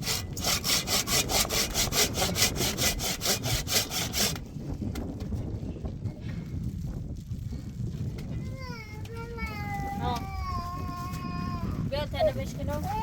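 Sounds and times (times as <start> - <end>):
hand saw cutting wood: 0.0 - 4.5.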